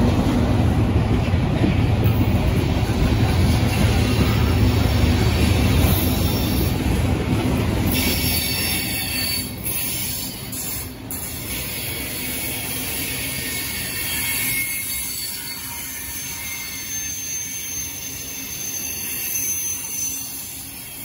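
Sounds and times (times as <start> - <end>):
train wheels rumbling on rails: 0.0 - 21.0
high-pitched wheel squeals: 7.9 - 10.9, 13.3 - 21.0.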